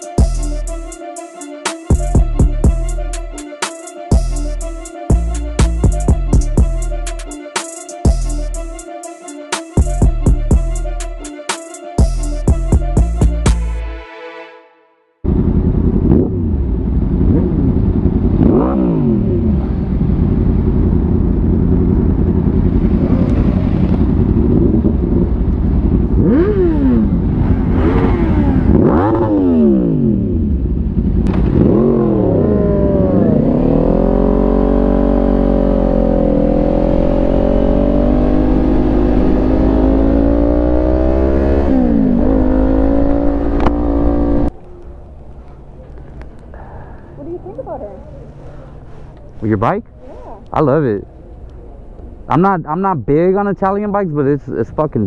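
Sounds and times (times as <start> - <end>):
motorcycle engine revving: 15.2 - 44.6
wind rumbling on microphone: 19.2 - 28.9.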